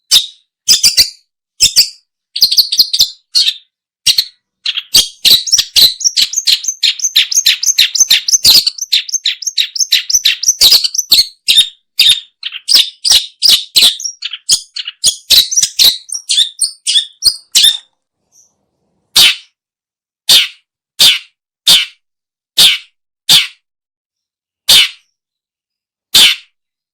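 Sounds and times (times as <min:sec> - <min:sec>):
bird chattering song: 0:00.0 - 0:18.5, 0:26.2 - 0:26.5.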